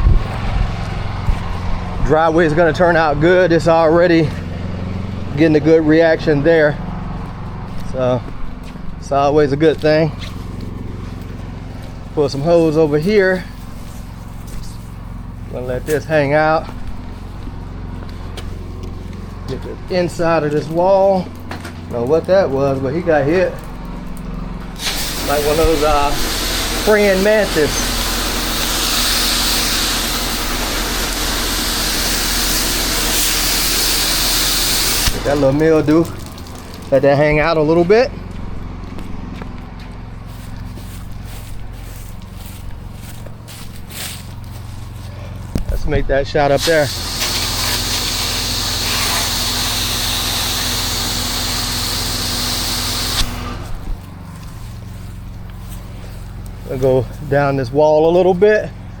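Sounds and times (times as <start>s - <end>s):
pressure washer engine hum: 0.0s - 59.0s
water spraying hiss: 24.7s - 37.1s, 46.5s - 54.8s.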